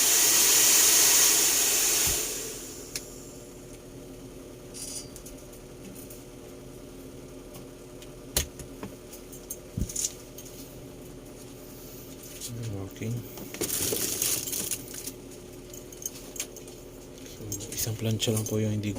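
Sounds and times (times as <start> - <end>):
faint steady hum: 2.3 - 18.9.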